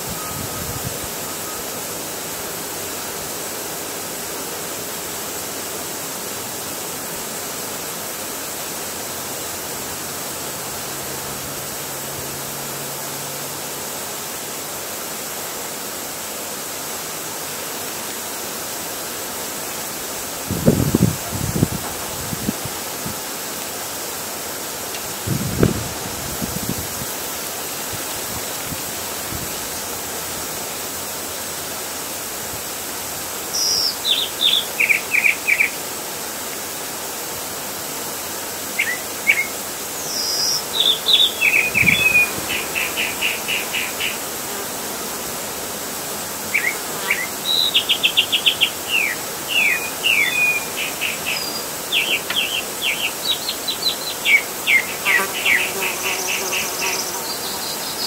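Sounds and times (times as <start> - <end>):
outdoor hiss: 0.0 - 58.0
songbird singing trills: 38.8 - 44.2, 46.5 - 58.0.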